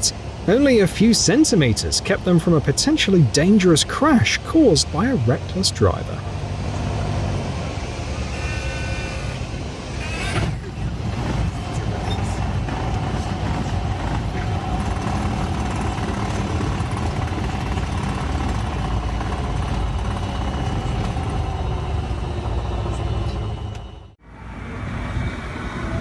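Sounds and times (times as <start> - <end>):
faint steady whine: 0.0 - 6.5
aircraft cockpit engine noise: 0.0 - 26.0.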